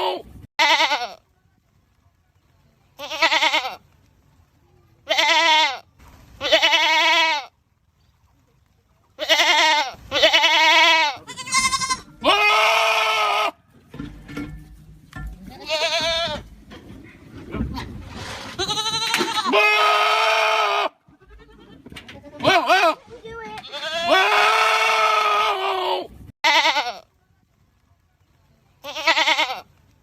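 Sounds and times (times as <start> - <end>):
goats screaming: 9.2 - 13.6, 18.6 - 21.8, 23.7 - 27.0.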